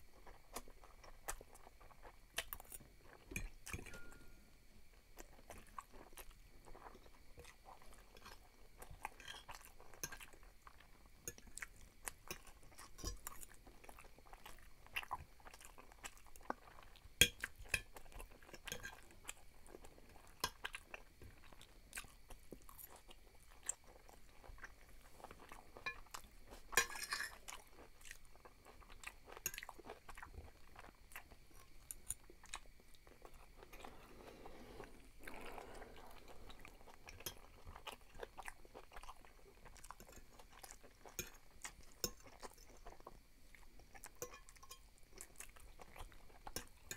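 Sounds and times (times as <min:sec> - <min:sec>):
wet chewing mouth sounds: 0:05.2 - 0:46.9
fork scraping on glass plate: 0:26.8 - 0:27.3.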